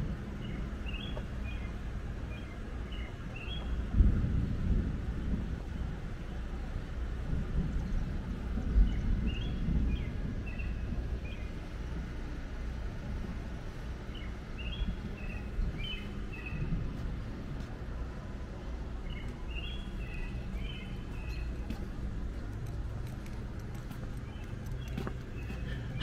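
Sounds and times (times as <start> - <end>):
low outdoor rumble: 0.0 - 26.0
songbird chirping: 0.4 - 3.9, 14.0 - 17.0, 17.6 - 26.0.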